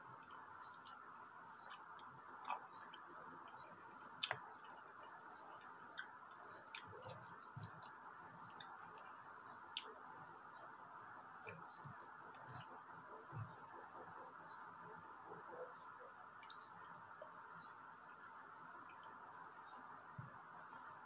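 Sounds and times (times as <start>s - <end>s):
faint steady hiss: 0.0s - 21.0s
wet chewing smacks and clicks: 0.2s - 4.8s, 5.5s - 10.0s, 11.4s - 14.1s.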